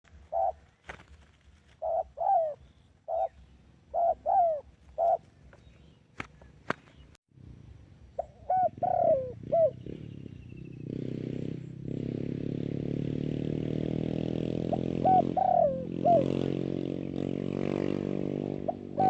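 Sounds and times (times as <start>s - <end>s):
dove cooing: 0.1s - 6.0s, 8.1s - 10.8s, 14.6s - 17.1s, 18.6s - 19.0s.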